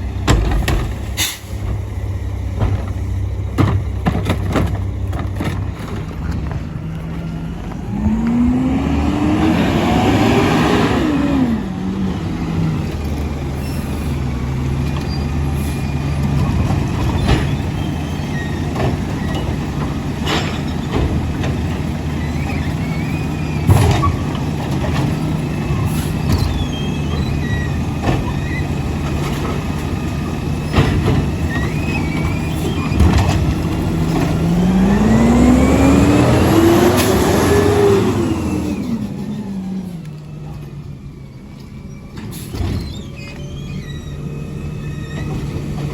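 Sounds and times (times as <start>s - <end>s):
diesel engine running and revving: 0.0s - 45.9s
sharp knocks and clanks: 0.2s - 1.9s, 2.5s - 6.7s.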